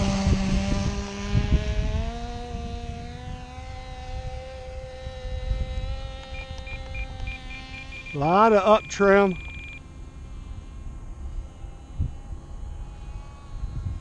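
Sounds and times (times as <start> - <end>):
model airplane engine buzzing: 0.0 - 14.0
faint short beeps: 6.3 - 9.8
person speaking: 8.1 - 9.7.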